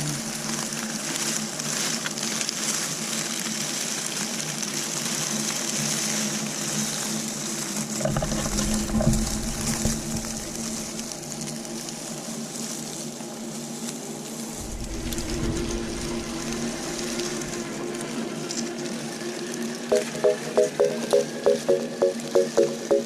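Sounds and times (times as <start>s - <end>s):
water rushing and splashing: 14.5s - 23.0s
low rumble: 14.6s - 18.6s.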